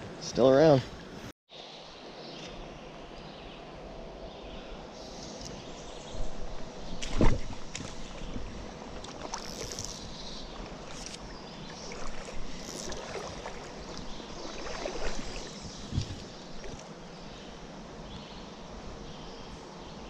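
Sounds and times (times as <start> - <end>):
stream water running: 4.8 - 19.1
water splashes and knocks: 7.0 - 9.9, 10.5 - 16.8.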